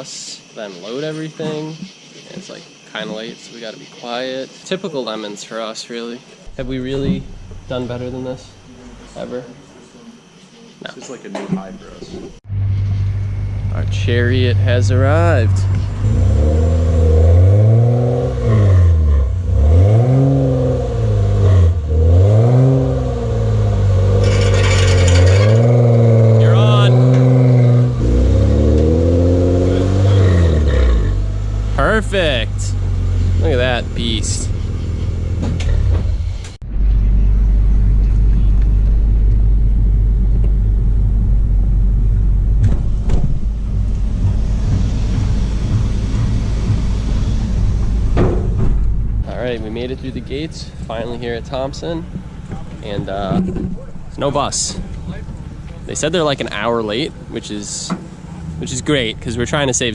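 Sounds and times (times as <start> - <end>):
vehicle engine revving: 12.4 - 59.9.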